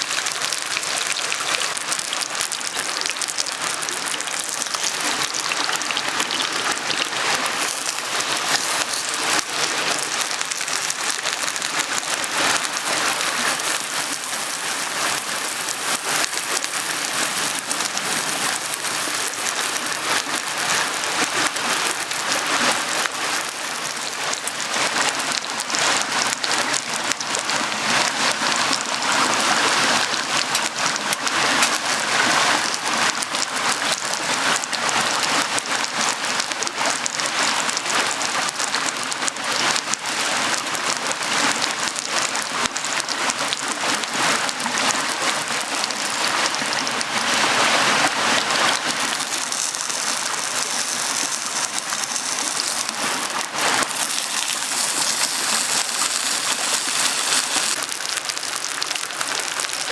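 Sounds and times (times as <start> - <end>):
stream babbling and splashing: 0.0 - 59.9.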